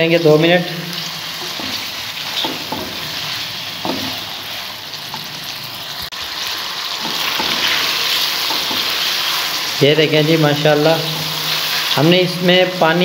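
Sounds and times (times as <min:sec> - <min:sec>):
chicken and peas sizzling: 0:00.0 - 0:13.0
spatula scraping pan: 0:01.0 - 0:05.7, 0:06.9 - 0:12.0.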